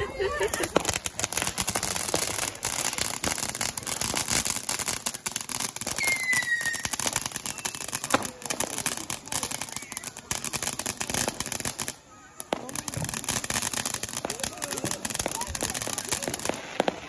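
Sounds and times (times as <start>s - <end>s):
fireworks crackling: 0.0s - 17.0s
firework whistle: 5.8s - 8.8s.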